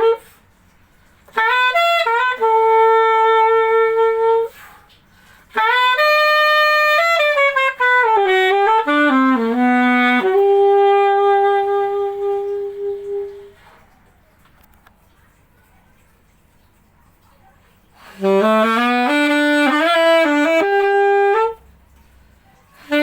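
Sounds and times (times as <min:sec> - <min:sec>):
saxophone playing: 0:00.0 - 0:00.5, 0:01.2 - 0:13.9, 0:18.0 - 0:22.0, 0:22.7 - 0:23.0.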